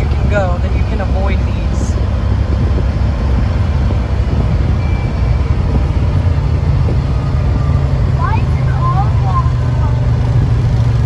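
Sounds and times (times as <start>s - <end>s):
engine low rumble: 0.0s - 11.0s.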